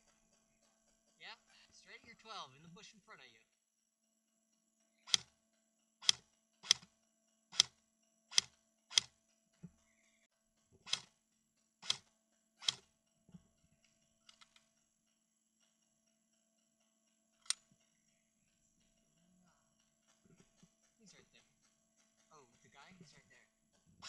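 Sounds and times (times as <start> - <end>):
airsoft gun firing single shots: 8.3 - 9.1, 11.8 - 12.0, 12.6 - 12.8.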